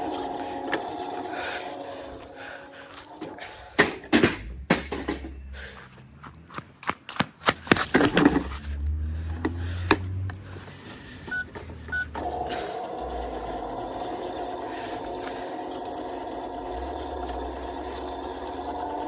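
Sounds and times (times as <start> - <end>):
low hum: 0.0 - 6.2, 11.3 - 19.0
short electronic beeps: 11.3 - 12.2.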